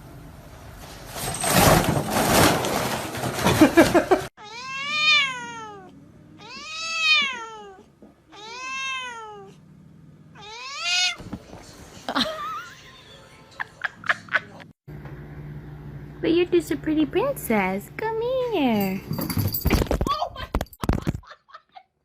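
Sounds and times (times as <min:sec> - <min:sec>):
cat meowing: 0:04.4 - 0:09.6, 0:10.4 - 0:11.2.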